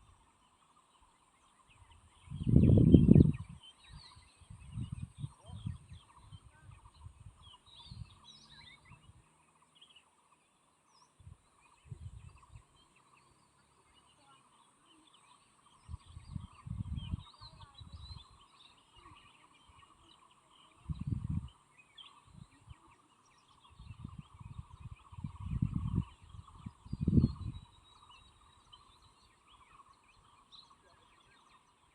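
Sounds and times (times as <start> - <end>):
small birds chirping: 0.0 - 31.9
wind buffeting microphone: 1.7 - 9.4, 11.1 - 13.4, 15.3 - 30.4.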